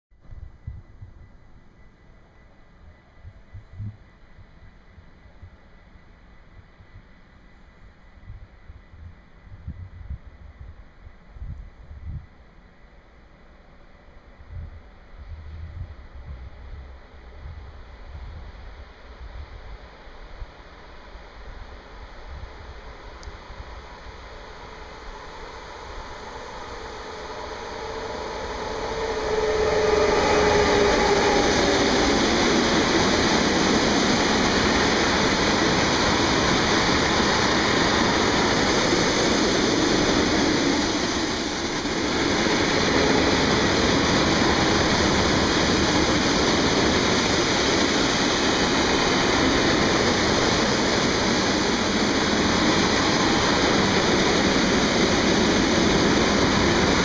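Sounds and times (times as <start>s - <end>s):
electric locomotive passing: 1.2s - 57.0s
falling whine: 23.7s - 57.0s
wheel and rail rumble: 24.0s - 57.0s
high wheel squeals: 26.0s - 33.7s, 36.6s - 46.2s, 49.1s - 54.4s.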